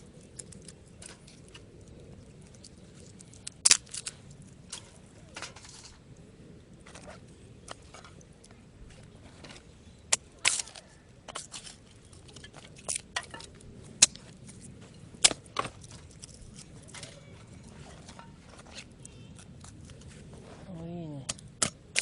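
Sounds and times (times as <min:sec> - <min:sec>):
dry twigs snapping: 0:00.0 - 0:06.0, 0:10.1 - 0:17.2.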